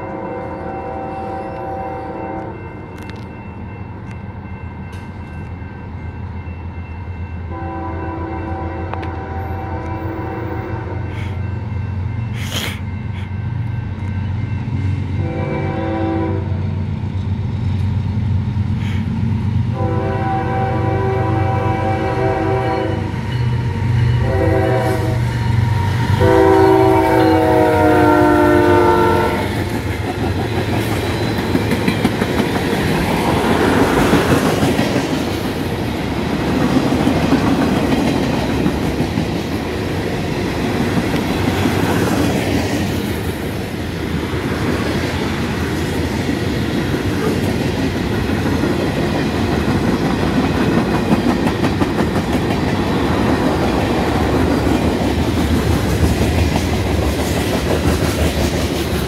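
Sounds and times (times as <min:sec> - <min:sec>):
train horn blasts: 0:00.0 - 0:02.7, 0:07.5 - 0:11.3, 0:15.2 - 0:16.8, 0:19.7 - 0:29.7
freight train rolling past: 0:00.0 - 0:59.0
steel wheels clacking on rails: 0:29.3 - 0:59.0.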